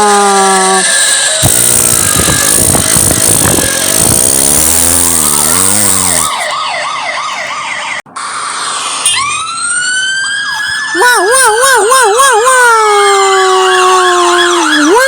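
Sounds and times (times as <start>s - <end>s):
cartoon engine noise wobbling: 0.5s - 6.6s
police siren warbling: 0.5s - 15.0s
rising siren wail: 4.8s - 15.0s.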